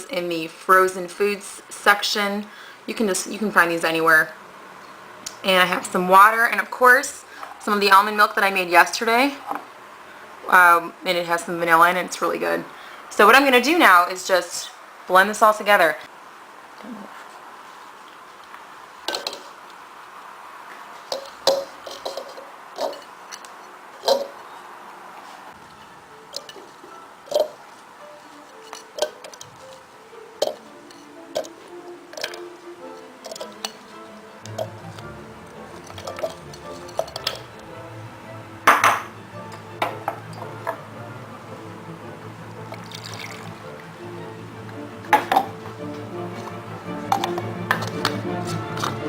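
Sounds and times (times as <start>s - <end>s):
dishes and containers clinking: 19.1s - 19.6s, 21.0s - 23.2s, 24.0s - 24.5s, 26.3s - 27.6s, 28.5s - 29.8s, 30.4s - 37.7s, 38.7s - 40.9s, 42.7s - 43.8s, 45.1s - 49.0s
kitchenware clatter: 19.1s - 19.6s, 21.0s - 23.2s, 24.0s - 24.4s, 35.8s - 37.5s, 38.7s - 39.1s, 45.1s - 45.6s
kitchenware clinking and knocking: 21.1s - 23.2s, 24.0s - 24.4s, 35.7s - 37.6s, 38.7s - 39.2s, 39.8s - 40.8s, 45.1s - 45.6s, 47.1s - 48.2s
background music: 25.6s - 49.0s.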